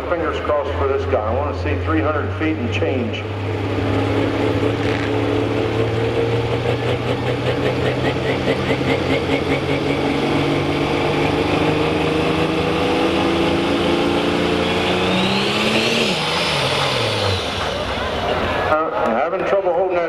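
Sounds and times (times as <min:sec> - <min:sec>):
tractor engine at high revs: 0:00.0 - 0:18.8.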